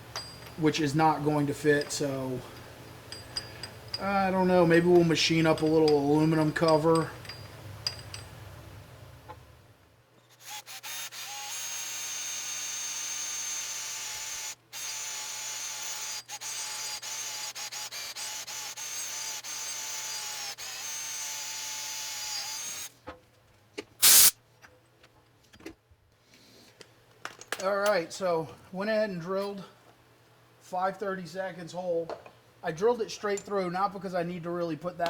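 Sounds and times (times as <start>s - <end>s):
electric drill boring: 10.4s - 22.9s.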